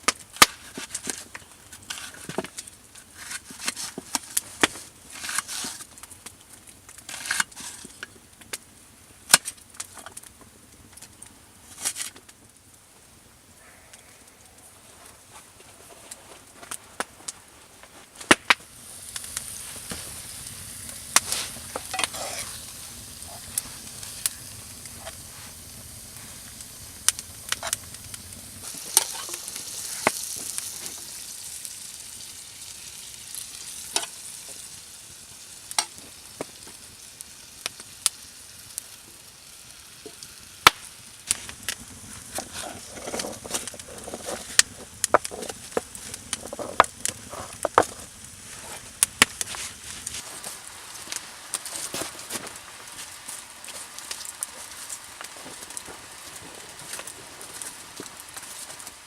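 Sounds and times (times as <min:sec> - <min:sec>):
campfire crackles and pops: 0:00.0 - 0:59.0
food sizzling in a pan: 0:18.5 - 0:59.0.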